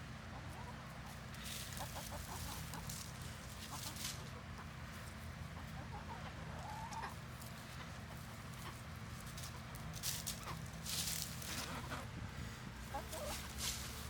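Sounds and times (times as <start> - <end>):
chickens clucking: 0.1 - 14.0
rustling: 9.2 - 11.9, 13.0 - 14.0.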